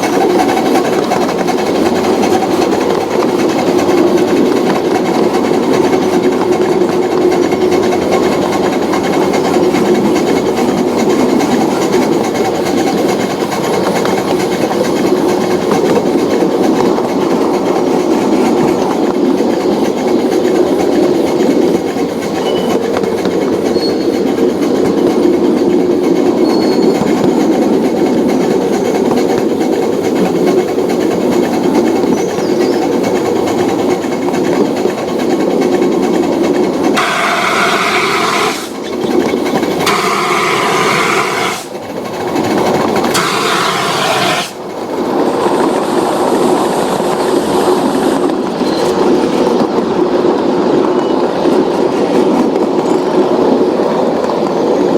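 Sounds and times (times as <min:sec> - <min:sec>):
wheel squeal: 0:00.0 - 0:44.8, 0:45.4 - 0:49.7
train rail clatter: 0:00.0 - 0:54.9.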